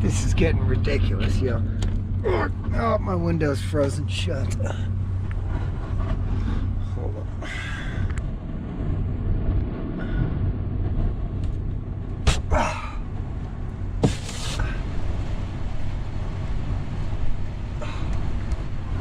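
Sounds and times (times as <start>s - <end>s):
wind buffeting a truck: 0.0s - 19.0s
sharp knocks: 12.2s - 12.5s, 14.0s - 14.6s.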